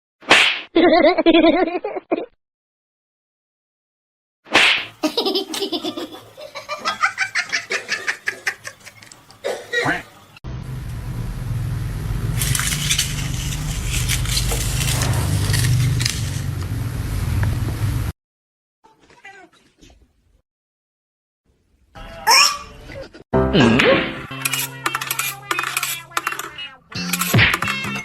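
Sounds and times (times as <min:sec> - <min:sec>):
person laughing hard: 0:00.8 - 0:02.3
crackles and clicks: 0:12.3 - 0:17.7.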